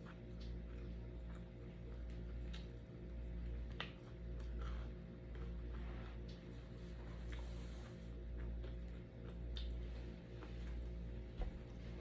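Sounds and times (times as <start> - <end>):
steady low hum: 0.0 - 12.0
mouth clicks and chewing: 8.3 - 10.1.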